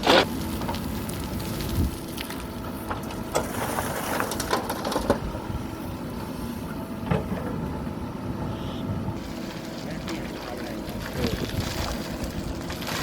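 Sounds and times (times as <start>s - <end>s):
gravel crunching and clattering: 0.0s - 5.3s, 9.2s - 13.0s
backhoe loader running: 0.0s - 13.0s.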